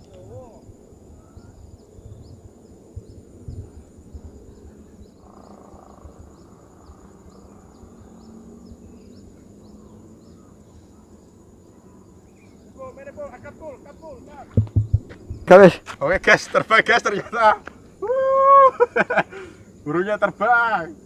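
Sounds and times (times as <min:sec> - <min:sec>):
wind buffeting microphone: 0:00.0 - 0:09.9, 0:14.3 - 0:16.0
insect chirps: 0:00.0 - 0:21.0
insects droning: 0:00.0 - 0:21.0
thumps: 0:14.5 - 0:15.4.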